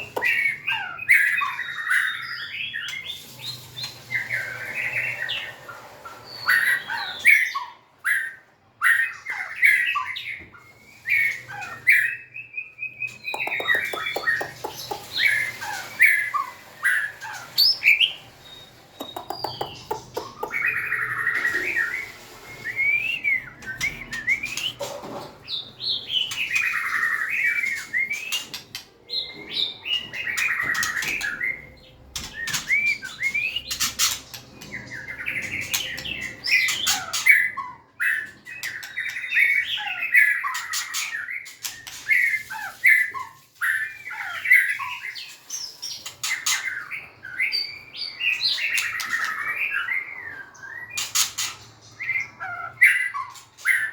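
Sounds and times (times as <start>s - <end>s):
songbird whistling song: 0.0s - 5.4s, 6.2s - 53.9s
rapid clicking bird notes: 13.3s - 15.3s, 19.0s - 20.8s.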